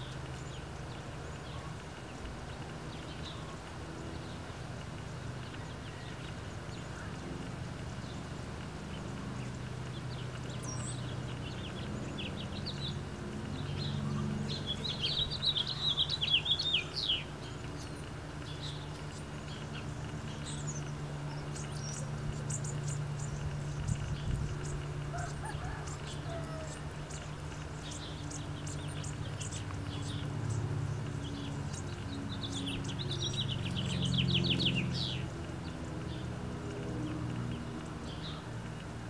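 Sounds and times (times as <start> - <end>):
low steady hum: 0.0 - 39.0
wild birds chirping: 0.0 - 39.0.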